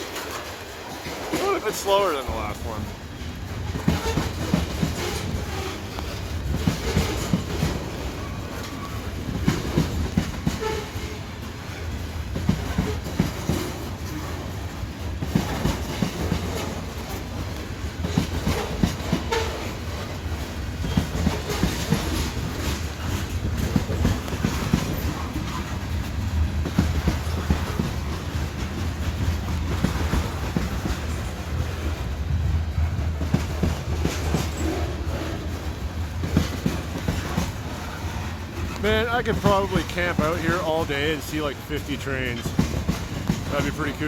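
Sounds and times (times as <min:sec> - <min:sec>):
train wheels clanking over rail joints: 0:00.0 - 0:41.5, 0:42.2 - 0:44.0
low train rumble: 0:00.0 - 0:44.0.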